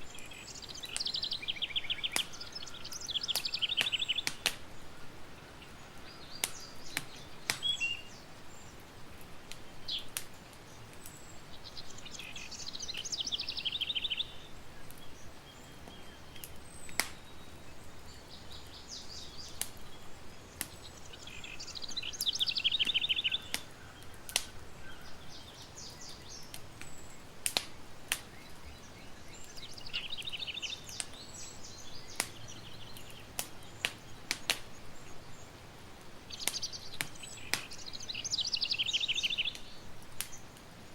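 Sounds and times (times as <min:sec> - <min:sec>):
campfire crackling and popping: 0:00.0 - 0:40.9
songbird trilling: 0:00.1 - 0:08.2, 0:11.6 - 0:17.0, 0:20.8 - 0:27.1, 0:28.3 - 0:33.8, 0:36.3 - 0:39.8.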